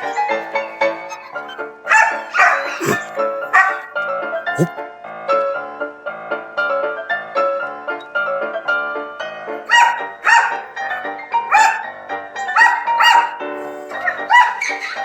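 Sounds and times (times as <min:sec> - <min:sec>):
dog barking: 0:00.0 - 0:04.8, 0:09.7 - 0:15.0
light piano music: 0:00.0 - 0:15.0.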